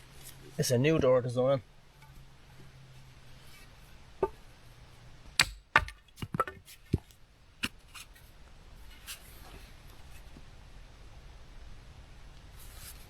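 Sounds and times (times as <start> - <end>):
knocks and clicks of wood: 5.4 - 7.8.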